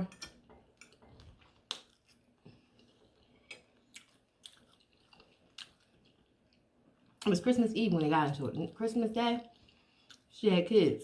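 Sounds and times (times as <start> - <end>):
person chewing wet clicks: 0.8 - 7.3.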